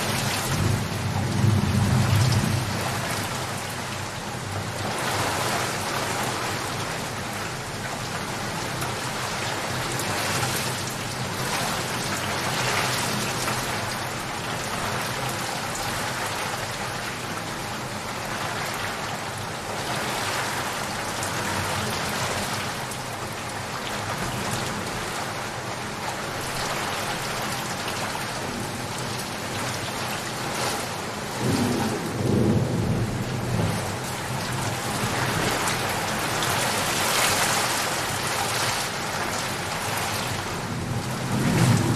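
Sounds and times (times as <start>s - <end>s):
rain pouring down: 0.0s - 41.9s
thunder rumbling: 31.3s - 36.6s, 40.6s - 41.9s.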